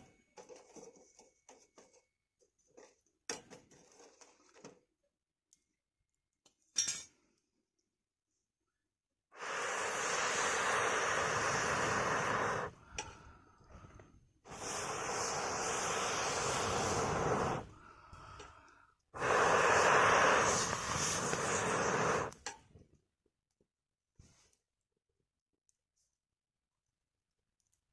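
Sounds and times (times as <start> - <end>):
blowing air through a pipe: 9.4 - 22.4.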